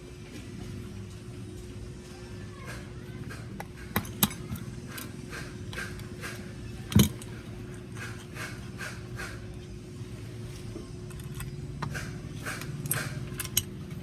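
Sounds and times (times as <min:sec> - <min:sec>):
steady low hum: 0:00.0 - 0:14.0
hand tools clicking on metal: 0:02.7 - 0:09.6, 0:11.0 - 0:14.0.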